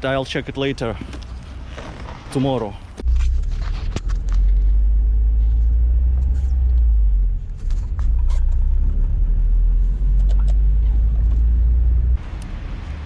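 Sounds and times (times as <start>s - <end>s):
loud low rumble: 3.0s - 13.0s.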